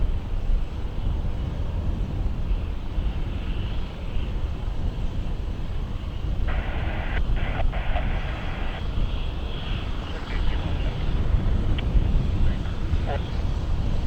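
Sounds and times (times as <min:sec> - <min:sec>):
aircraft rumble: 0:06.0 - 0:14.0
radio static hiss: 0:06.5 - 0:13.8.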